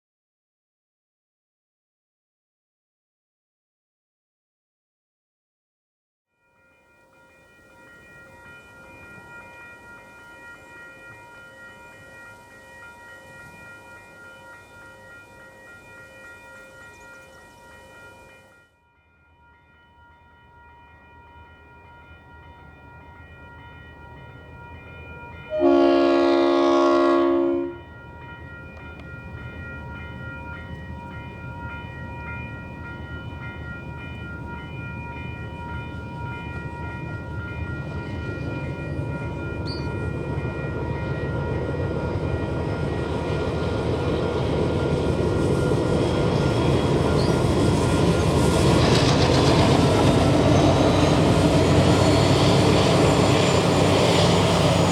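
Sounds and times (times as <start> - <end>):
diesel locomotive engine rumble: 22.2 - 54.9
train horn blast: 25.5 - 27.9.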